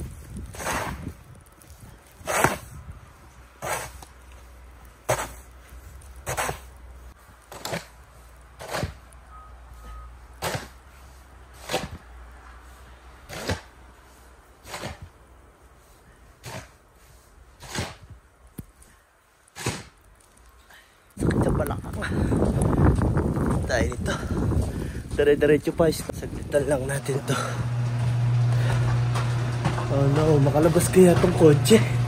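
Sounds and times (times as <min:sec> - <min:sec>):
footsteps crunching in snow: 0:00.0 - 0:09.9.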